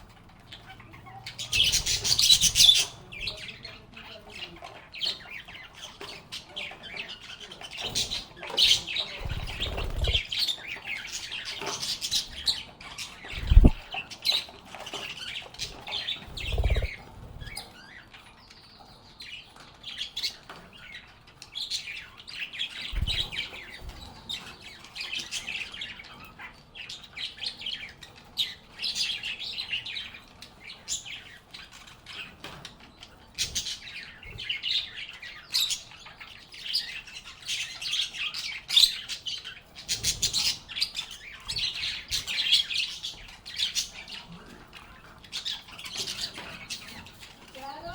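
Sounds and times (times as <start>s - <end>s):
lovebirds chirping and squawking: 0.0s - 47.9s
low thumps: 13.4s - 13.8s.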